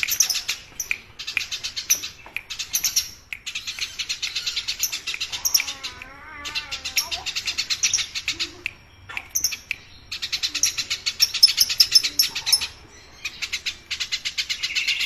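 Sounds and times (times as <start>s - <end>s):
sparrows chirping: 0.0s - 15.0s.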